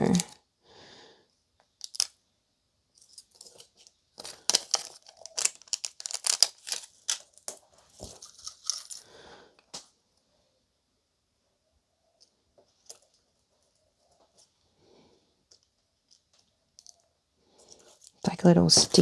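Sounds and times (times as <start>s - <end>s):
plastic packaging crinkling and tearing: 0.0s - 0.4s, 1.8s - 2.1s, 3.0s - 9.1s.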